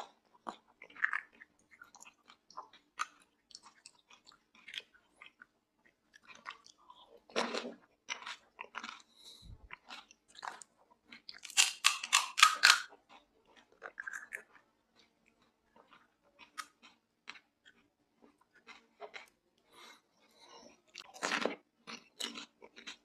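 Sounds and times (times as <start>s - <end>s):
chewing clicks: 10.3s - 12.9s
crisp shells crunching: 11.4s - 12.9s.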